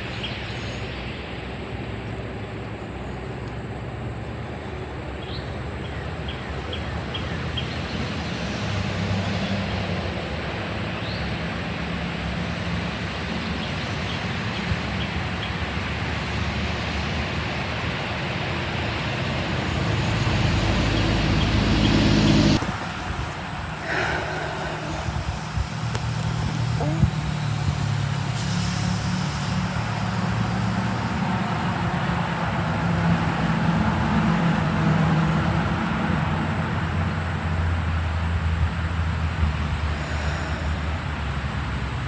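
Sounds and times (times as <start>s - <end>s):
low engine-like hum: 0.0s - 42.0s
steady rushing wash: 17.4s - 32.6s.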